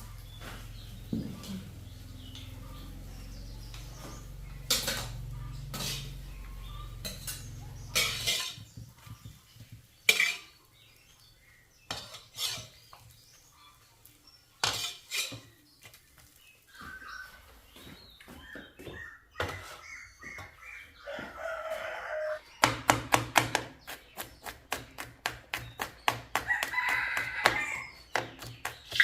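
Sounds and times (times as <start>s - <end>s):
metal utensils clinking on pots: 4.2s - 10.7s, 11.8s - 13.1s, 14.6s - 15.6s.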